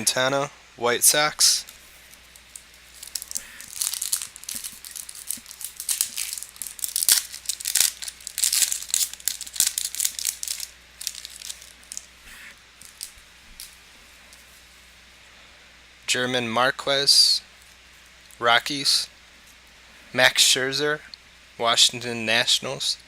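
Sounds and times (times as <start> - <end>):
foil wrapper crinkling: 1.6 - 14.7.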